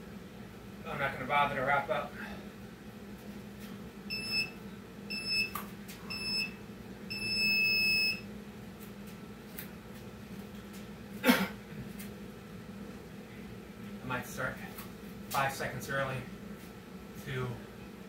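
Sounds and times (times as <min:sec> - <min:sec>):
interval timer beeping: 0:04.1 - 0:04.5, 0:07.1 - 0:08.2.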